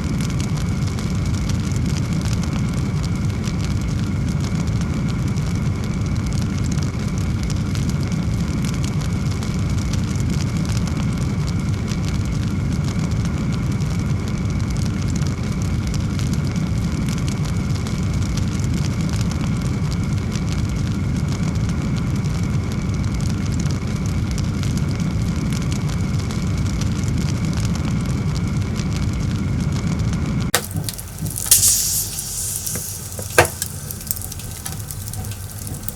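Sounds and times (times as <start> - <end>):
wood fire roaring and crackling: 30.6 - 35.9.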